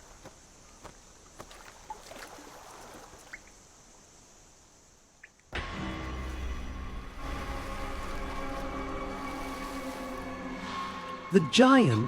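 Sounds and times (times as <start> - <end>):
quiet river water: 0.0 - 12.0
small splashes and drips: 1.3 - 3.7, 7.2 - 10.7.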